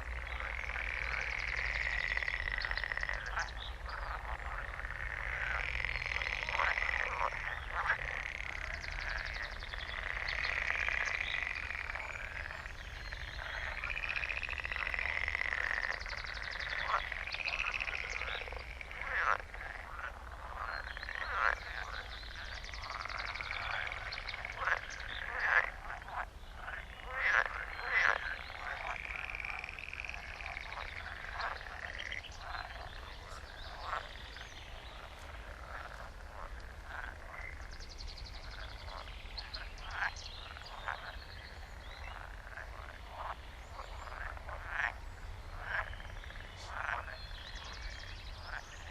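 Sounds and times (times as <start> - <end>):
chorus of frogs croaking: 0.0 - 48.9
nearby frog croaks: 0.0 - 48.9.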